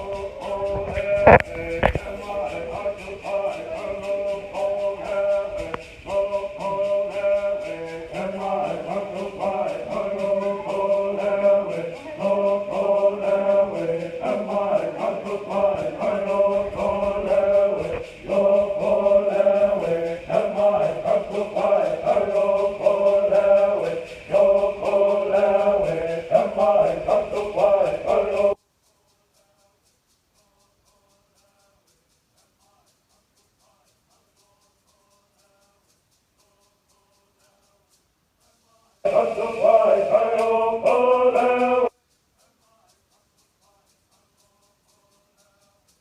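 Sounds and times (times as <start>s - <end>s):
chorus singing a chant: 0.0s - 28.6s, 38.5s - 45.9s
fast ticking beat: 0.0s - 46.0s.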